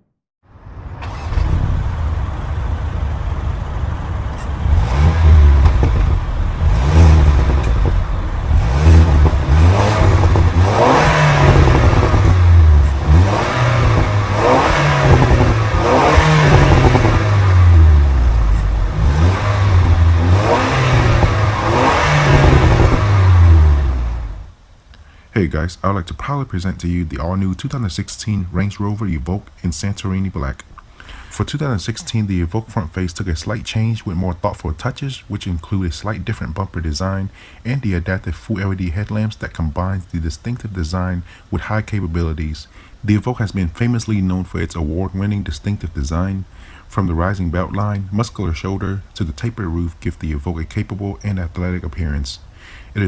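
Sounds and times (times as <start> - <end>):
car engine revving: 0.6 - 24.6.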